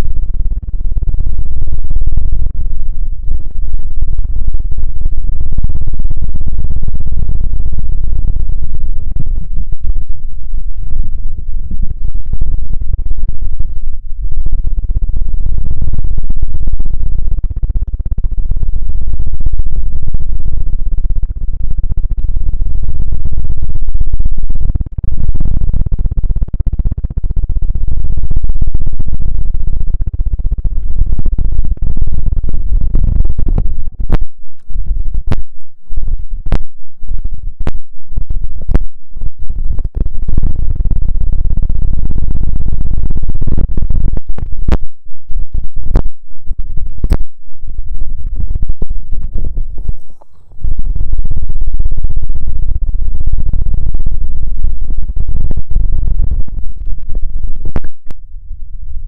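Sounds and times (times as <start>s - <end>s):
scratching and rubbing on microphone: 30.6s - 41.8s, 43.3s - 51.5s.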